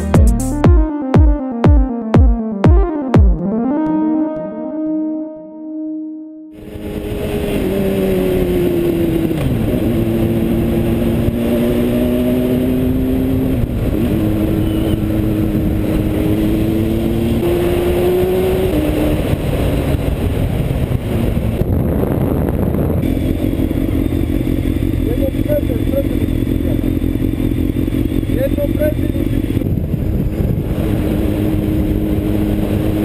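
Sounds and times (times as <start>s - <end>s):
motorcycle engine running: 6.6s - 33.0s
wind rush over microphone: 18.2s - 23.1s, 29.5s - 33.0s.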